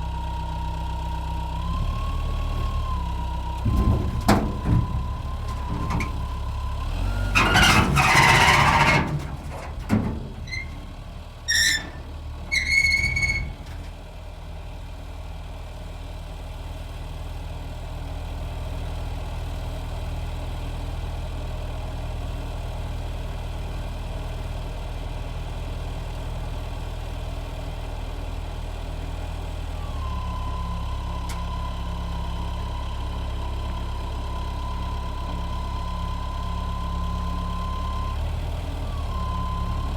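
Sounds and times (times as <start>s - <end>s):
heavy vehicle engine idling: 0.0s - 39.9s
short high squeaks: 3.8s - 14.0s.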